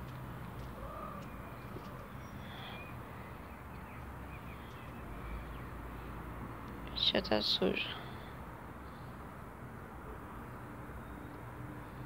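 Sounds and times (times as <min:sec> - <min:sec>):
distant bird chirps: 0:00.0 - 0:07.0.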